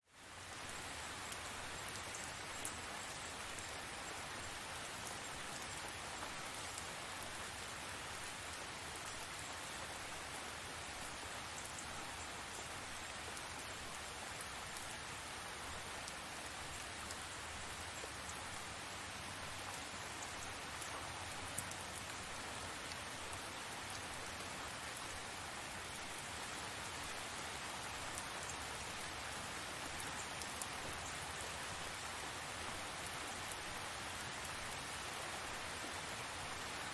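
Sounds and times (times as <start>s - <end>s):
rain falling steadily: 0.0s - 36.9s
raindrop ticks: 19.6s - 22.2s.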